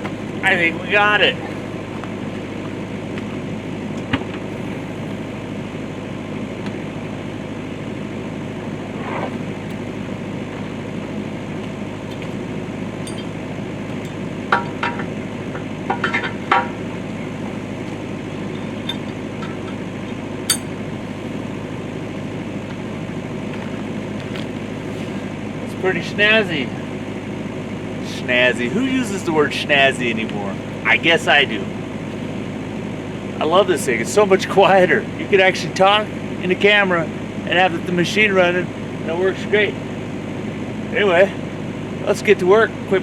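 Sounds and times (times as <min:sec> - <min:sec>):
excavator diesel engine running: 0:00.0 - 0:43.0
metal clinks and clanks: 0:13.0 - 0:13.4, 0:18.5 - 0:20.8.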